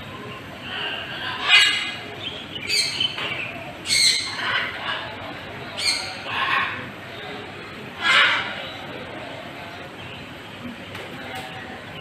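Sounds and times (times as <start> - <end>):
birds squawking: 0.6 - 7.0, 8.0 - 8.9.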